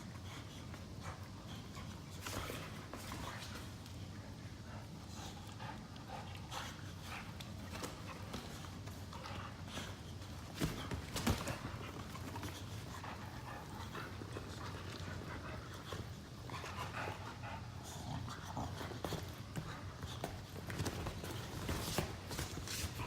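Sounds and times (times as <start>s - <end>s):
dogs panting: 0.0s - 23.0s
knocks and rustles of scuffling: 6.6s - 16.1s, 18.7s - 23.0s.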